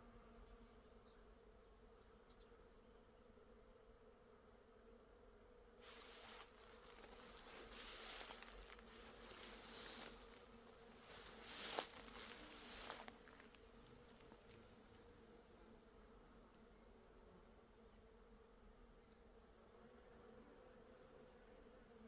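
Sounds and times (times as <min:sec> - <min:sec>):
rustling noise: 0:05.8 - 0:14.0
bees humming: 0:05.8 - 0:15.2.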